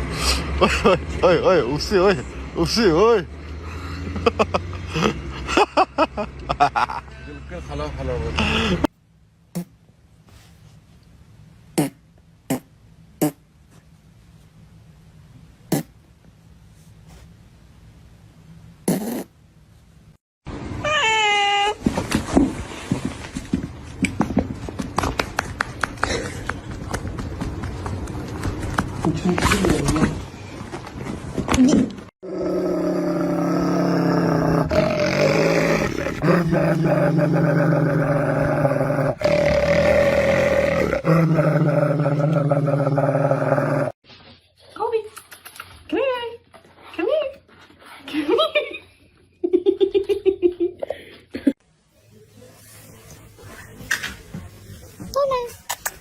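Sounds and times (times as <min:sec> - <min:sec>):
animal growling: 0:32.2 - 0:44.0.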